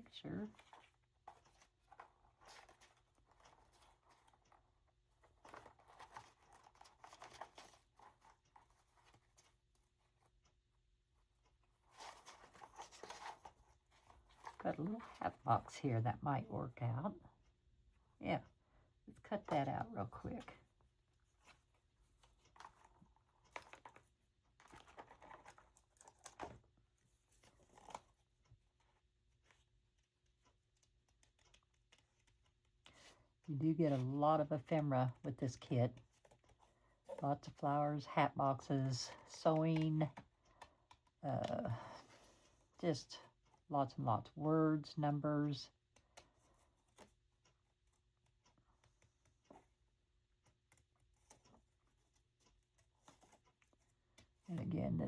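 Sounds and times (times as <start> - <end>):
paper rustling: 21.3 - 28.2.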